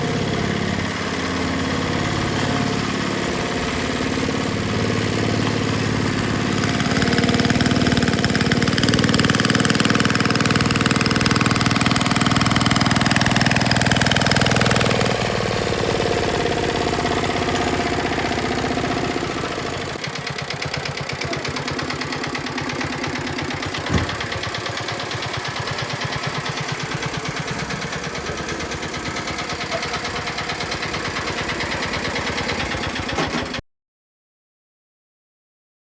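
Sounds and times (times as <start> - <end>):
farm machine engine: 0.0 - 33.6
sharp knock: 23.7 - 24.5.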